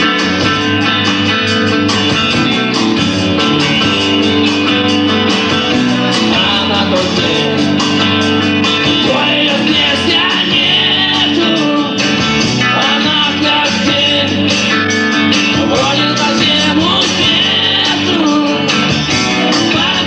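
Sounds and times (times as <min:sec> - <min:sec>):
bass guitar: 0:00.0 - 0:20.0
distorted electric guitars: 0:00.0 - 0:20.0
drums: 0:00.0 - 0:20.0
person singing: 0:05.6 - 0:20.0.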